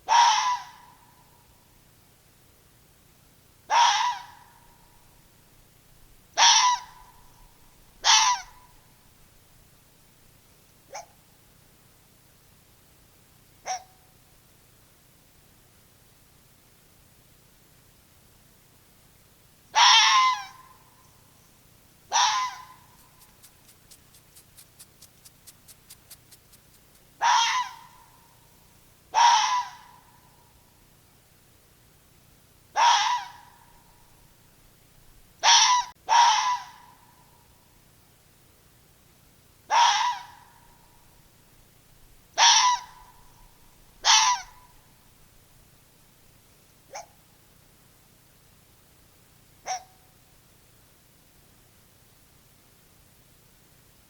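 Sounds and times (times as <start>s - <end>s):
animal harsh cry: 0.1s - 0.9s, 3.7s - 4.4s, 6.4s - 7.0s, 8.0s - 8.6s, 19.8s - 20.6s, 22.1s - 23.5s, 27.2s - 28.0s, 29.2s - 30.0s, 32.8s - 33.5s, 35.4s - 36.9s, 39.7s - 40.5s, 42.4s - 43.1s, 44.0s - 44.6s
faint rapid clicking: 23.0s - 27.2s.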